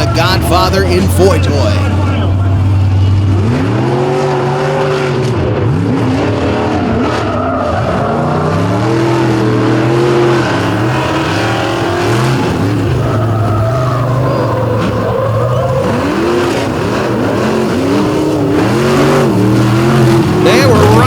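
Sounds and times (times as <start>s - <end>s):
truck engines revving: 0.0s - 21.0s.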